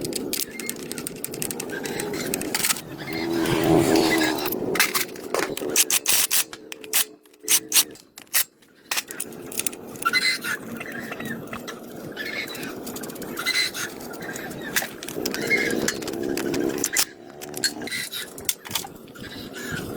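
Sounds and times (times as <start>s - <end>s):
sharp clicks and knocks: 0.0s - 3.0s, 14.7s - 18.9s.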